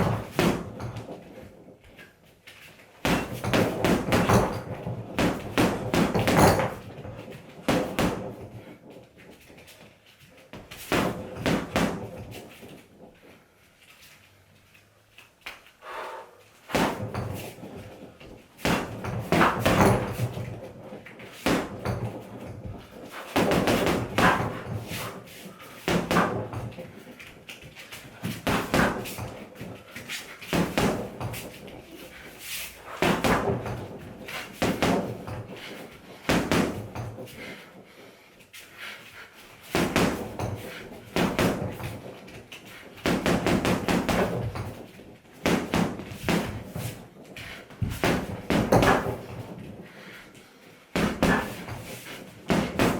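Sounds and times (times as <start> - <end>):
punches thudding on heavy bag: 0.0 - 1.3, 3.0 - 8.7, 10.6 - 12.7, 16.7 - 27.1, 27.9 - 37.6, 39.6 - 49.7, 50.9 - 52.9.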